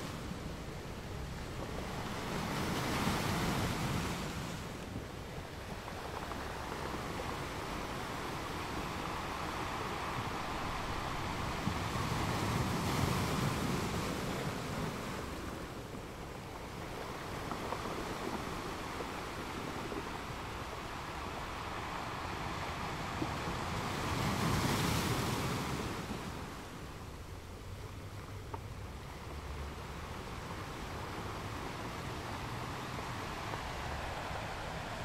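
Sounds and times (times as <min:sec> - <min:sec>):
wind buffeting microphone: 0:00.0 - 0:35.0
sea water washing and splashing: 0:29.4 - 0:35.0.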